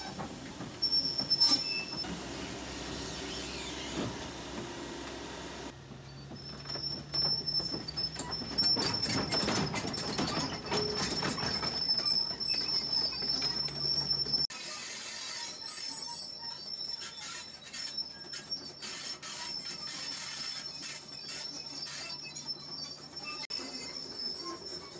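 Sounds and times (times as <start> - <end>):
high-pitched metallic squeal: 0.8 - 2.1, 6.1 - 24.9
machine clanks and knocks: 5.7 - 14.0.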